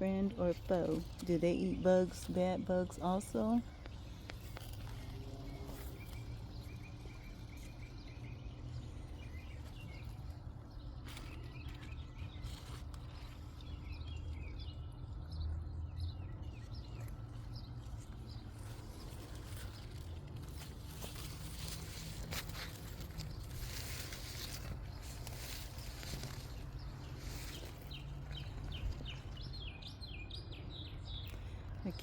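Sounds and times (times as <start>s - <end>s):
low outdoor rumble: 0.0s - 32.0s
small birds chirping: 0.0s - 32.0s
faint rustles: 17.8s - 29.4s.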